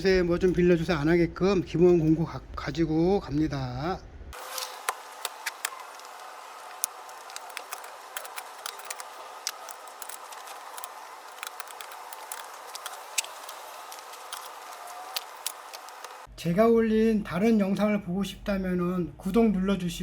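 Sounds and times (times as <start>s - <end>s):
hand tools clicking and clinking: 4.4s - 16.3s.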